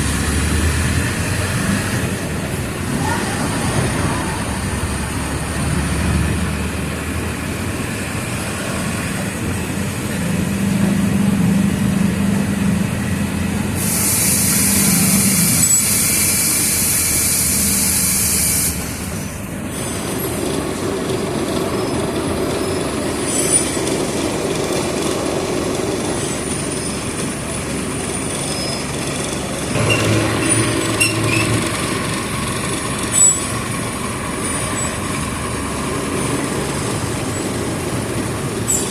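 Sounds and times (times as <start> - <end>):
bus diesel engine running: 0.0 - 38.9
air hiss: 13.8 - 19.3.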